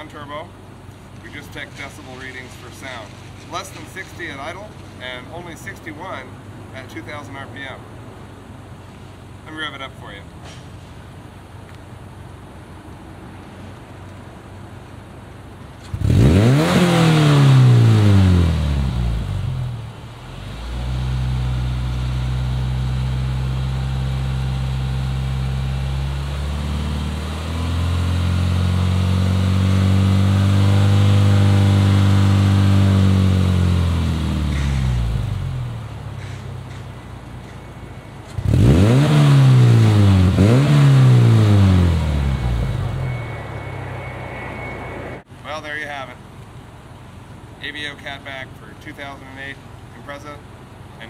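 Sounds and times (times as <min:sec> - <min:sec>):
car engine revving: 0:15.8 - 0:36.4, 0:38.2 - 0:45.3.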